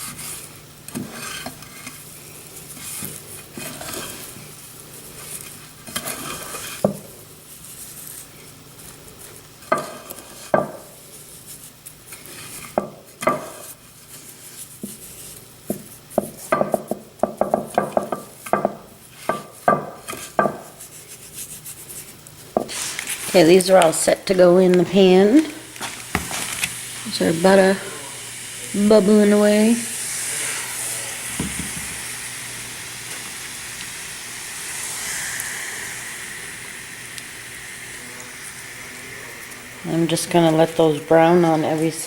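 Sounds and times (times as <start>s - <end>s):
utensil scraping a bowl: 0.0s - 4.4s, 5.2s - 6.8s
butter sizzling in a frying pan: 0.0s - 21.6s, 22.5s - 42.0s.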